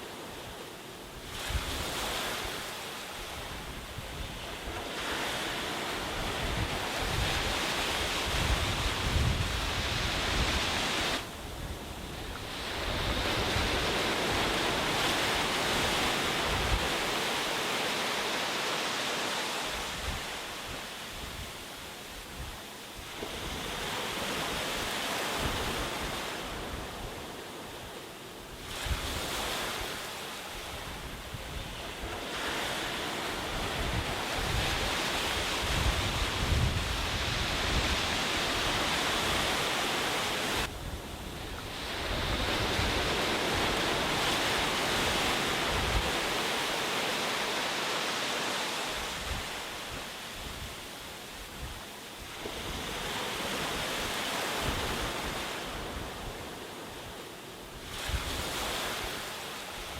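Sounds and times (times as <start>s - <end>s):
sea surf washing onto beach: 0.0s - 59.9s
wind rumble on microphone: 1.1s - 17.3s, 19.7s - 46.6s, 49.0s - 59.9s.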